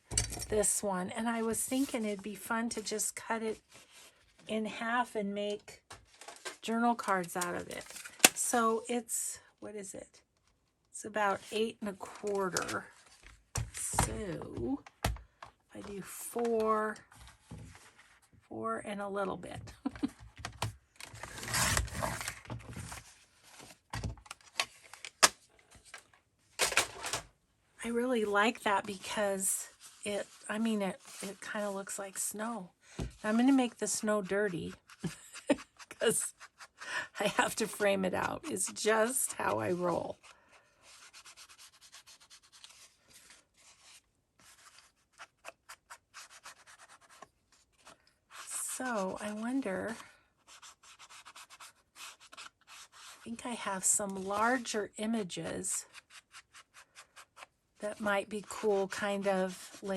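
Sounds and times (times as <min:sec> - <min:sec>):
faint rubbing on paper: 0:28.8 - 0:32.2, 0:39.8 - 0:49.3, 0:49.9 - 0:54.6.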